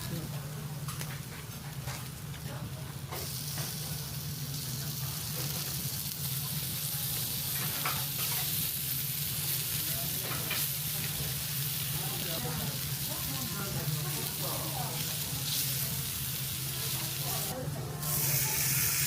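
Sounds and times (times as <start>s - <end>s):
beef sizzling on a grill: 0.0s - 19.0s.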